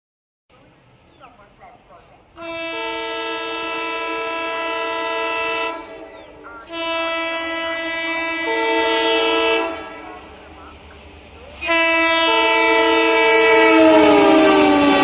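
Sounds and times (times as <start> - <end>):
locomotive air horn blasts: 2.4 - 10.4, 11.6 - 15.0.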